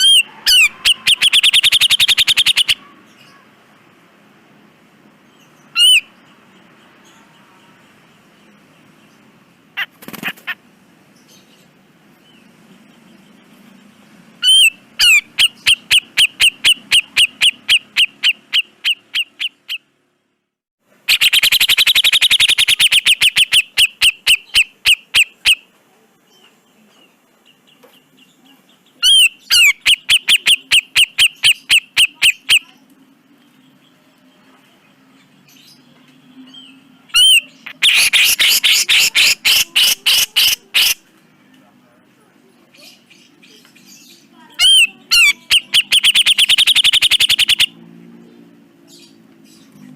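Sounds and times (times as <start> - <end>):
bulbul calling in harsh bursts: 0.0 - 3.5, 5.7 - 6.2, 9.6 - 10.7, 14.4 - 20.0, 21.0 - 25.7, 29.0 - 32.8, 37.1 - 41.1, 43.9 - 47.8.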